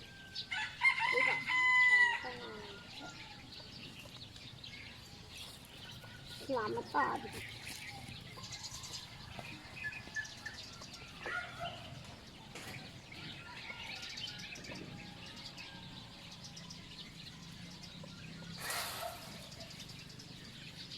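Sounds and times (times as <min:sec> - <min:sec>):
birds chirping and twittering: 0:00.0 - 0:20.9
brief burst of noise: 0:18.6 - 0:19.6.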